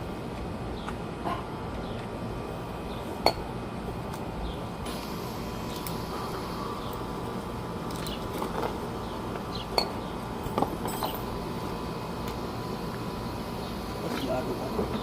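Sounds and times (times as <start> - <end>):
steady background hum: 0.0 - 15.0
metal tools clinking: 10.8 - 11.3.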